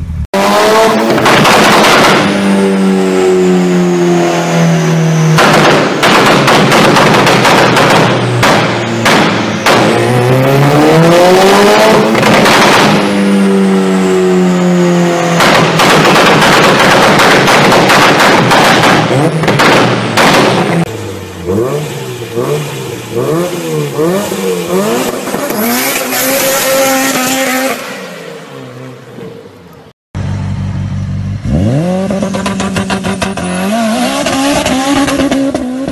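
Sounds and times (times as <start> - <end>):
car engine revving hard: 0.3 - 28.2, 31.4 - 35.9
exhaust bangs: 0.4 - 28.8.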